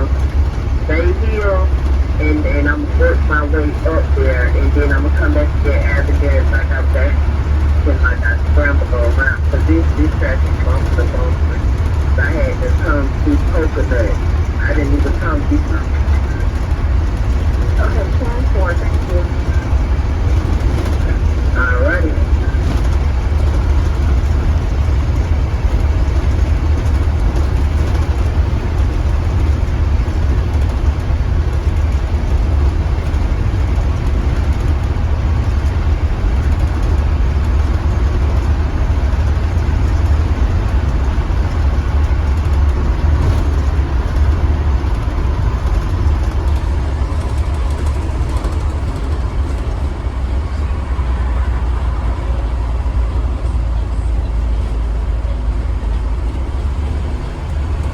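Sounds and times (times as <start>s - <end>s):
bus engine and road rumble: 0.0s - 57.9s.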